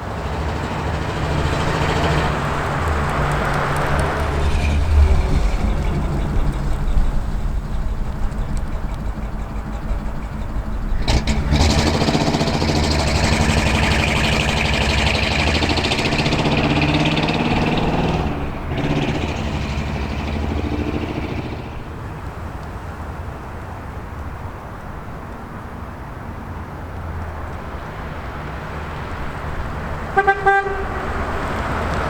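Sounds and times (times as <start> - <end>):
car engine running: 0.0 - 23.3.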